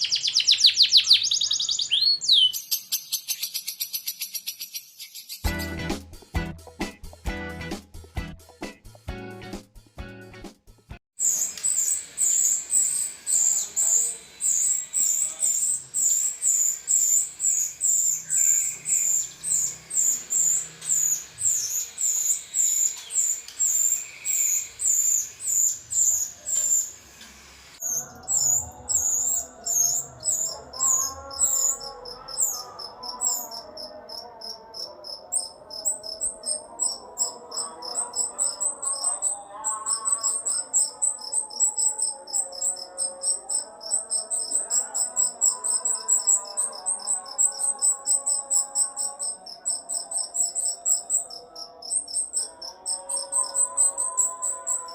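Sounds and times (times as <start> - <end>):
bird chirping: 0.0 - 5.8, 11.2 - 27.0, 27.8 - 54.9
music: 5.4 - 11.0, 27.8 - 33.9.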